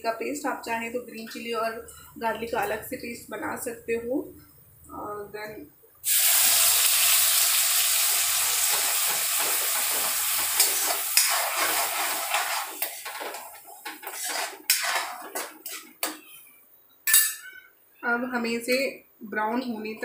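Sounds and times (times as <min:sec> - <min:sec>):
paste sizzling in hot oil: 0:06.0 - 0:14.8
spoon scraping a metal pan: 0:08.7 - 0:16.5.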